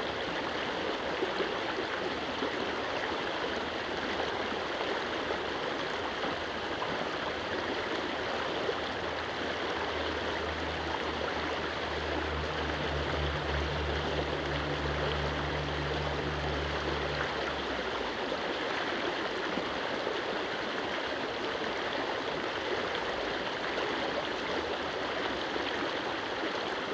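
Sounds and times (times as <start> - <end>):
stream water rushing over stones: 0.0 - 26.9
low hum: 8.1 - 18.2.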